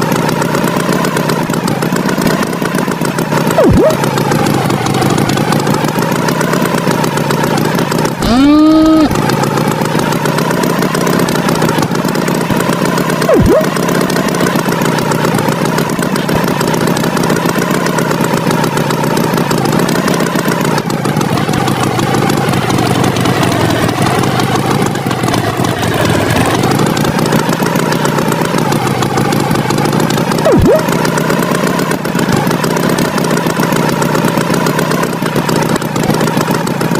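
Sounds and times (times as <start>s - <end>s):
tractor engine idling: 0.0s - 36.9s
quick falling swoop: 3.6s - 4.0s, 13.3s - 13.7s.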